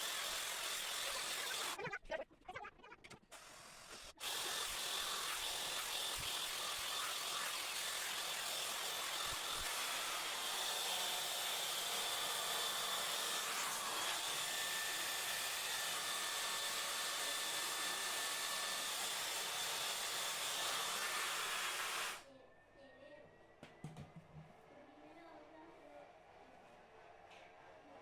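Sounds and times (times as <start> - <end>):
hair dryer blowing air: 0.0 - 1.8, 9.0 - 22.2.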